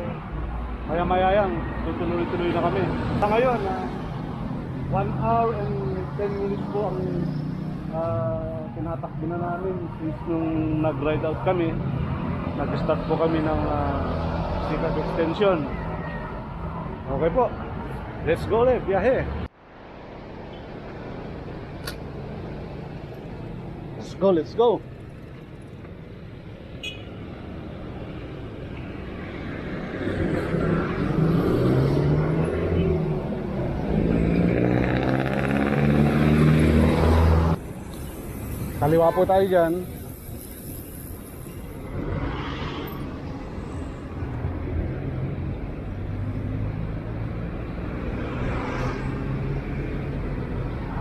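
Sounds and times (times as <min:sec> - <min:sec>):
road traffic noise: 0:00.0 - 0:51.0
vehicle engine humming: 0:21.3 - 0:48.4
vehicle passing close: 0:28.9 - 0:51.0.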